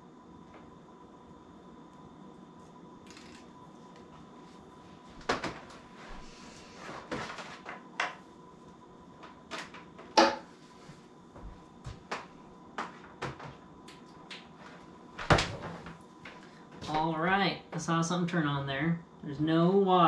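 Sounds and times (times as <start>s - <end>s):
plastic knocks and clatters: 12.1s - 13.6s.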